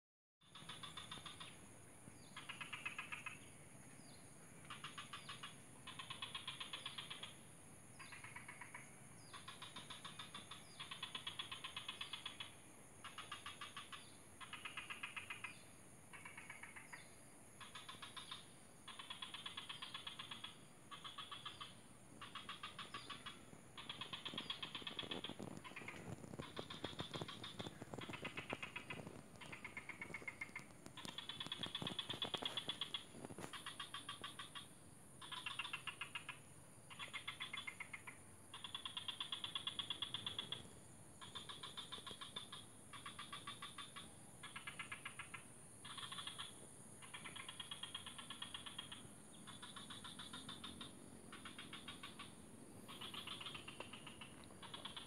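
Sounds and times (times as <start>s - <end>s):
bird rattling trills: 18.9s - 34.6s.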